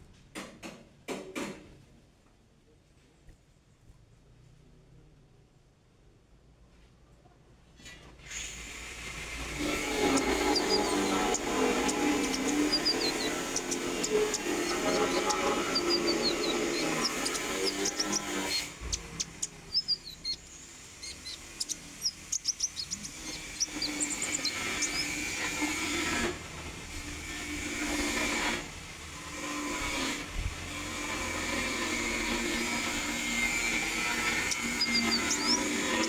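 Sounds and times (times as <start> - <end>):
songbird chirping and twittering: 8.8 - 29.0, 30.7 - 36.0.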